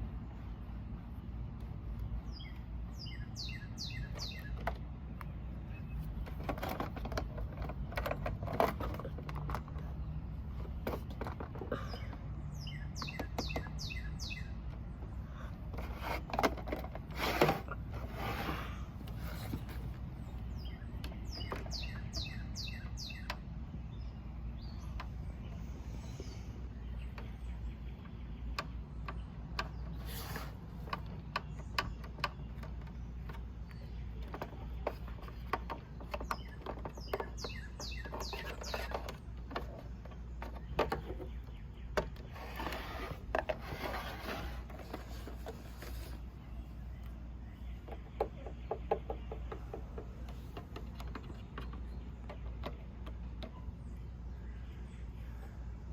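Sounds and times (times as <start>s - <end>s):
songbird singing: 0.0s - 55.9s.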